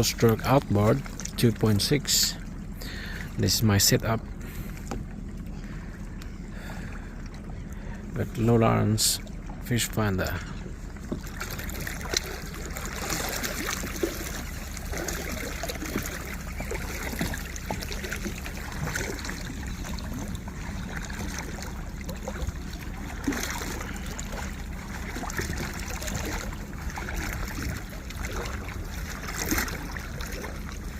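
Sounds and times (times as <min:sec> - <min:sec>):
low rumble: 0:00.0 - 0:30.9
small splashes: 0:00.0 - 0:30.9
water lapping against hull: 0:00.0 - 0:30.9.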